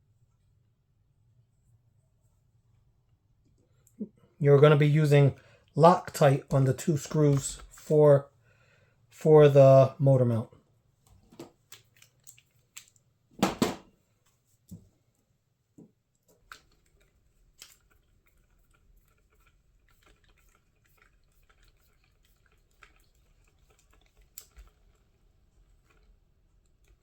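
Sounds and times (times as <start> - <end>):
louder knock: 13.4 - 13.8.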